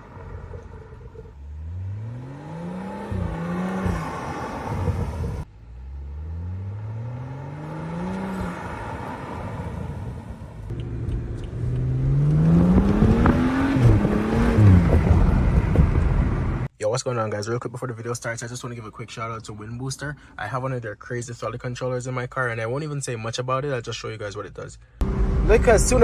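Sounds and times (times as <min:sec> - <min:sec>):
car engine accelerating: 0:00.0 - 0:16.7, 0:25.0 - 0:26.0.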